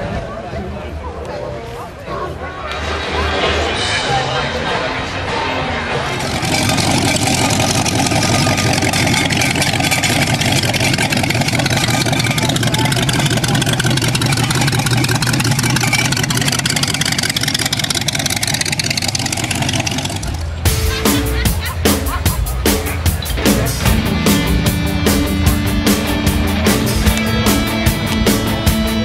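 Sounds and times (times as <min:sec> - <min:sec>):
pickup engine driving past: 0:02.8 - 0:20.7.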